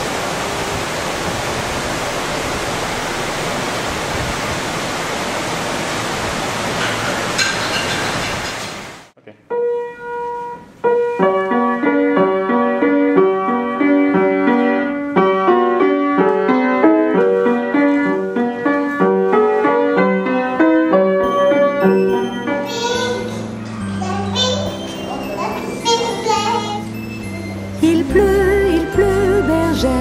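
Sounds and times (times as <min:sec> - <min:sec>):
steady rushing noise: 0:00.0 - 0:08.7
piano melody: 0:09.5 - 0:30.0.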